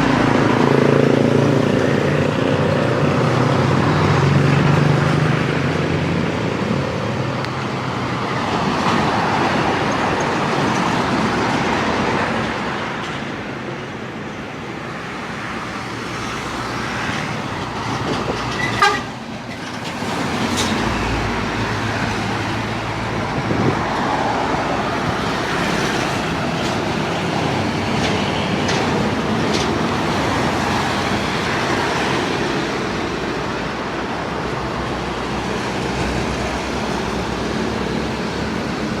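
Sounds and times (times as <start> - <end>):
road noise: 0.0 - 39.0
truck engine: 0.0 - 39.0
short horn toot: 18.6 - 19.1.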